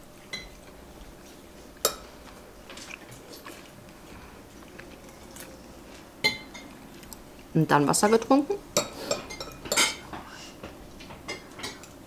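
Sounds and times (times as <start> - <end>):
person chewing: 0.0 - 7.5.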